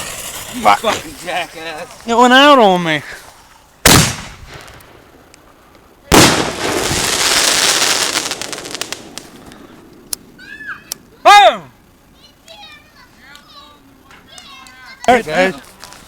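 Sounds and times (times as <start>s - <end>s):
fireworks bangs: 0.0s - 2.6s, 3.8s - 11.1s
fireworks hissing and crackling: 0.0s - 16.0s.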